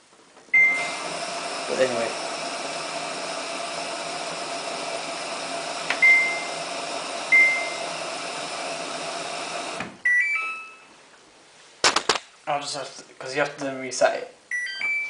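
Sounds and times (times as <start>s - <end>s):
washing machine beeping: 0.5s - 5.1s, 5.8s - 10.9s, 14.5s - 15.0s
steady machine hum: 0.6s - 10.0s.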